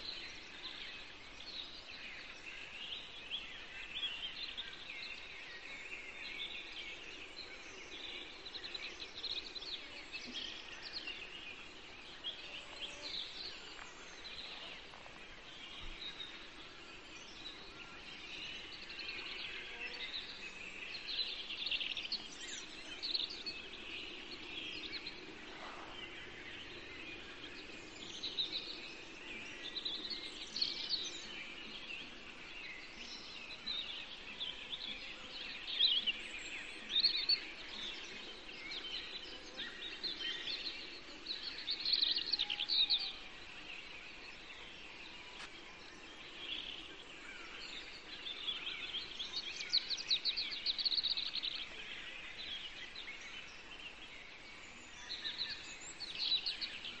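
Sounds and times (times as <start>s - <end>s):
faint background noise: 0.0s - 57.0s
songbirds singing in chorus: 0.0s - 57.0s.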